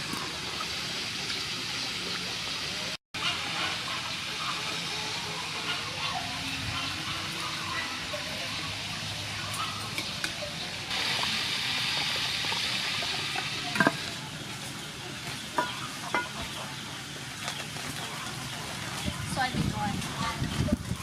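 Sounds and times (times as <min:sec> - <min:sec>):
food sizzling in hot oil: 0:08.7 - 0:14.4.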